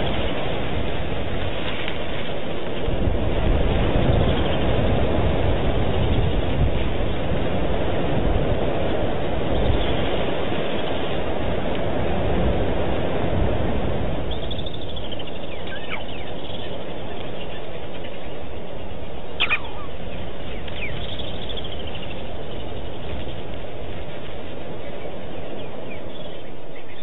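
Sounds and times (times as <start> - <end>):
wild birds calling: 0.0 - 11.7, 14.1 - 27.0
downward-gliding whistled bird calls: 9.4 - 11.2, 14.2 - 27.0
short sharp bird call: 19.4 - 20.0.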